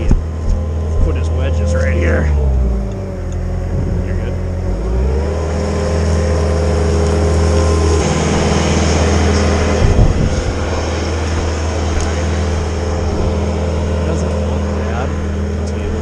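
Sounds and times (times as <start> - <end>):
chainsaw cutting at full throttle: 3.7 - 16.0.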